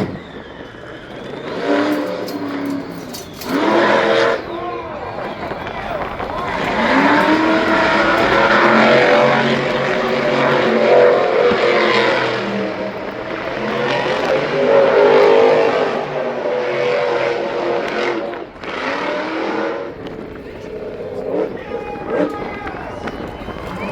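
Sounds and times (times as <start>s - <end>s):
racing engine revving: 0.0s - 23.9s.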